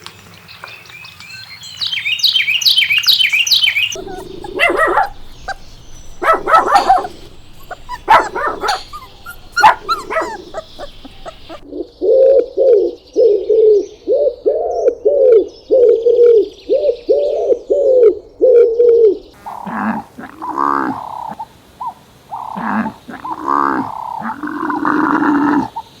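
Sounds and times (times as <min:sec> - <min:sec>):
dogs barking: 0:03.9 - 0:11.6
dog whining and yelping: 0:04.0 - 0:11.6.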